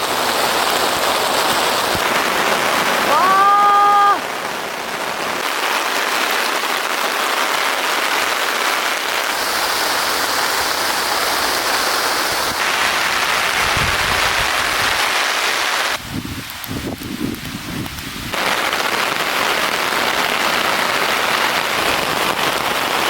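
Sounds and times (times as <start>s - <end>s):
heavy rain pouring: 0.0s - 23.0s
wind buffeting microphone: 13.3s - 15.1s, 16.0s - 18.4s.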